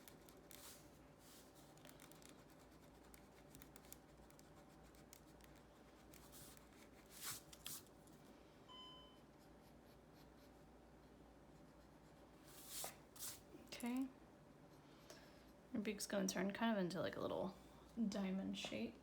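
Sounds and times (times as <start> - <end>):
pencil scratching on paper: 0.0 - 7.8, 9.2 - 13.4.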